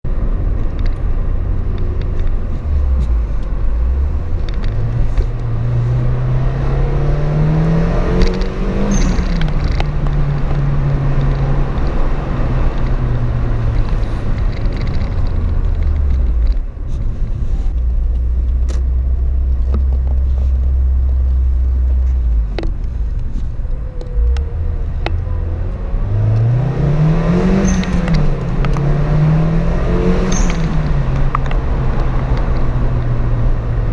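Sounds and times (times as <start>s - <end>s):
car engine accelerating: 0.1s - 33.9s.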